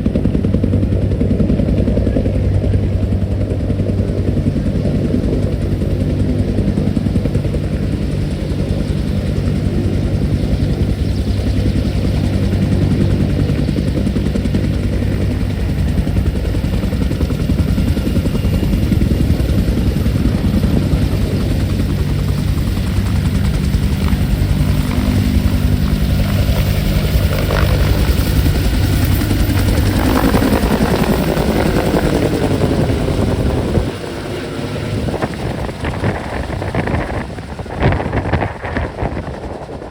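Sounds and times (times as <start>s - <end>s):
helicopter engine drone: 0.0s - 39.9s
helicopter rotor pulsing: 0.0s - 39.9s.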